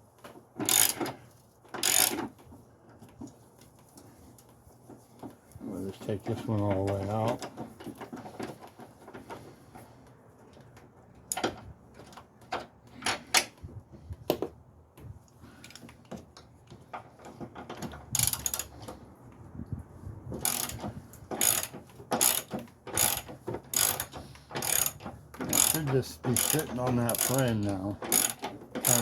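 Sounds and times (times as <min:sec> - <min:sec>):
ratchet wrench clicking: 0:00.6 - 0:01.2, 0:01.8 - 0:02.2, 0:18.2 - 0:18.7, 0:20.4 - 0:20.8, 0:21.4 - 0:29.0.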